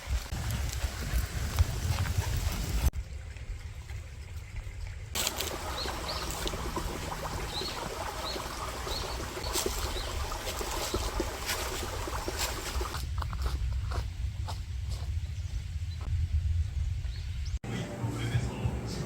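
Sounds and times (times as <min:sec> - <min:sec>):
water trickling: 0:03.1 - 0:13.0
low rumble: 0:13.0 - 0:19.0.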